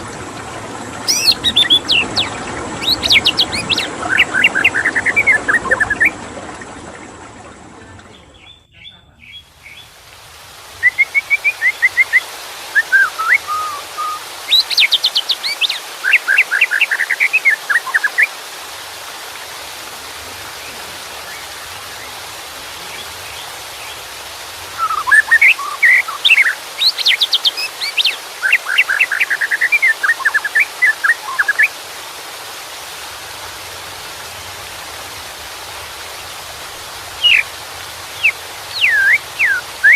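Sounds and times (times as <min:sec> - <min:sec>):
running water: 0:00.0 - 0:39.9
bird singing whistled phrases: 0:01.1 - 0:06.1, 0:08.2 - 0:09.8, 0:10.8 - 0:18.3, 0:24.8 - 0:31.7, 0:37.2 - 0:37.4, 0:38.2 - 0:39.9.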